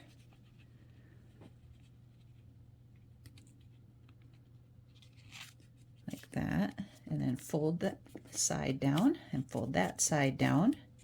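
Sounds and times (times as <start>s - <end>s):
low steady hum: 0.0s - 11.0s
paper rustling and creasing: 1.4s - 7.5s.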